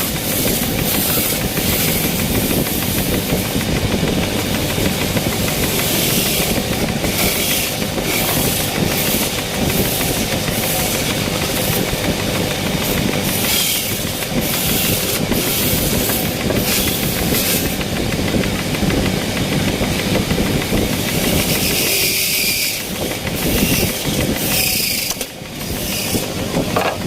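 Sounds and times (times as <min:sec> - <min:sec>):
tool rasping on spinning wood: 0:00.0 - 0:27.0
wood lathe running: 0:00.0 - 0:27.0.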